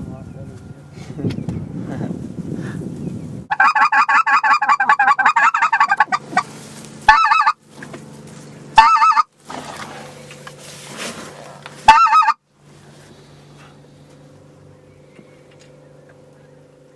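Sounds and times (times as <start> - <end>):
goose-style honking: 3.5 - 7.6, 8.8 - 9.3, 11.8 - 12.4.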